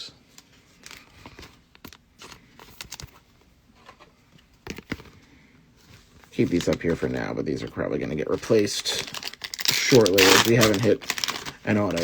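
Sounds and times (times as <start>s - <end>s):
cards clicking and rustling: 8.3s - 12.0s.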